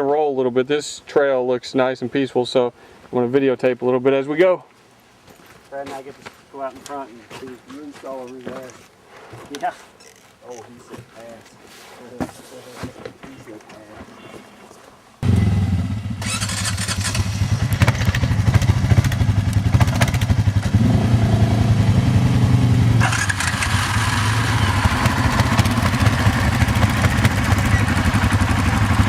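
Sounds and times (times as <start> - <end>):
atv engine running: 15.2 - 29.0
machine clattering on rough trail: 16.2 - 20.8, 23.0 - 29.0.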